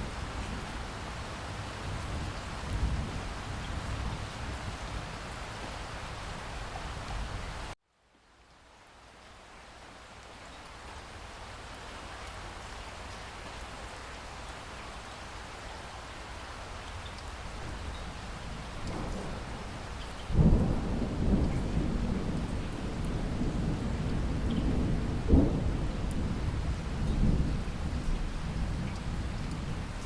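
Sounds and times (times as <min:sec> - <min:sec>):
steady rain falling: 0:00.0 - 0:30.0
thunder rumbling and cracking: 0:17.6 - 0:30.0.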